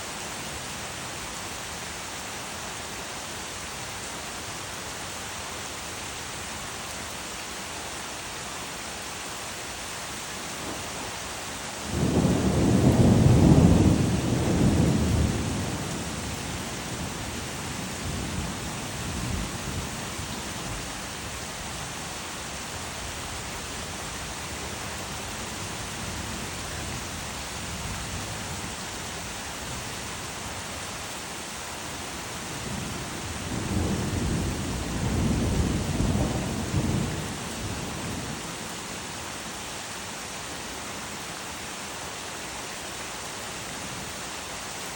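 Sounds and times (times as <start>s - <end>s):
steady rain: 0.0s - 44.9s
thunder rumbling: 11.8s - 19.9s, 32.6s - 38.4s.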